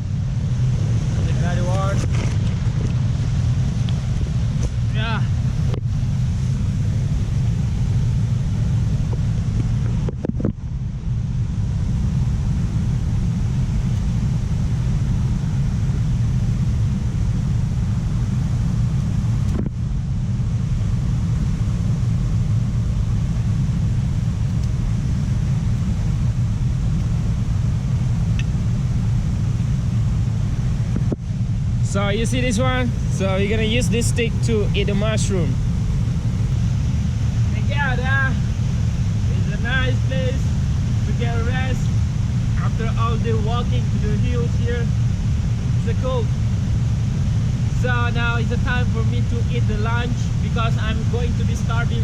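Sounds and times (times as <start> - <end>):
waterfall rumbling: 20.8 - 52.0.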